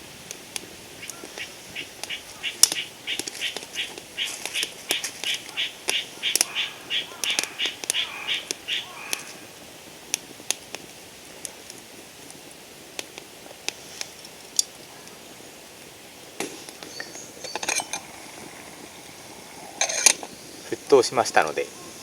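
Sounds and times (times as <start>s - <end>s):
campfire crackling: 0.0s - 22.0s
faint steady hiss: 0.0s - 22.0s
sharp pops: 0.2s - 9.4s, 16.3s - 22.0s.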